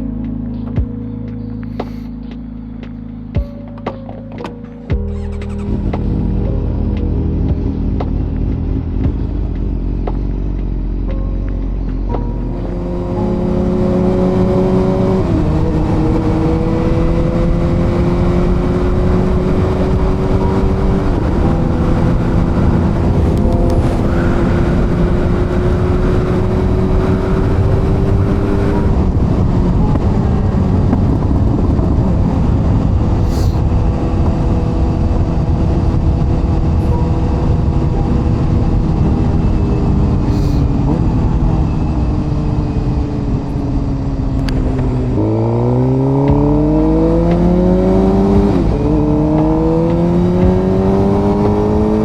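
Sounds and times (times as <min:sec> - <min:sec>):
motorcycle engine running: 0:04.8 - 0:52.0
wind noise: 0:12.0 - 0:52.0.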